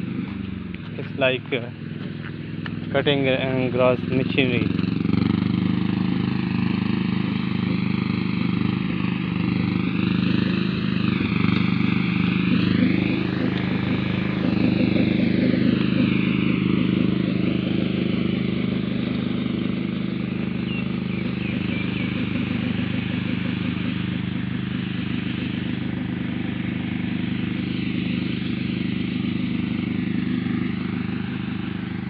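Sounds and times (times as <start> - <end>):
mowing tractor engine running: 0.0 - 32.0.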